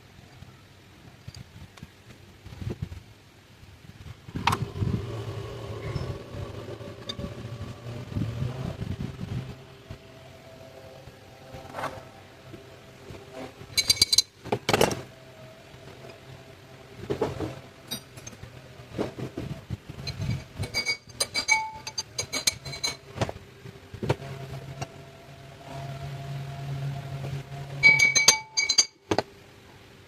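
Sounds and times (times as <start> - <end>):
metal tools clinking on engine parts: 13.7 - 15.0, 17.9 - 18.4, 20.0 - 23.1, 27.8 - 29.0.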